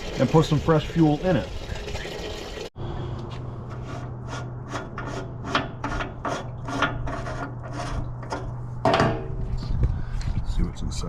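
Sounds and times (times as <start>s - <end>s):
scraping metal fitting: 3.6s - 8.6s.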